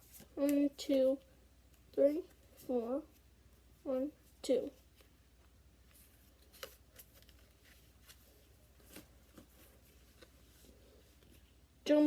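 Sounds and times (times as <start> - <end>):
trading cards rustling and clicking: 5.9 - 11.4.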